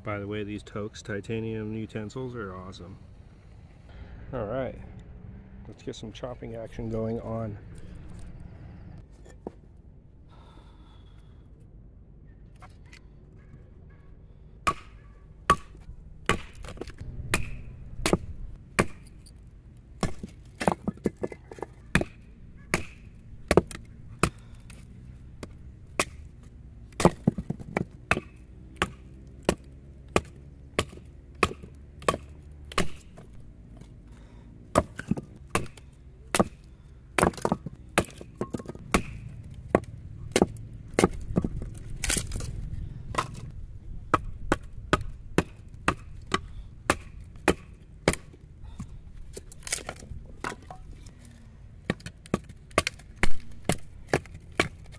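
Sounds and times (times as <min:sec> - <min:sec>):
knife chopping into wood: 0:27.0 - 0:33.3, 0:37.2 - 0:42.4, 0:44.1 - 0:48.4.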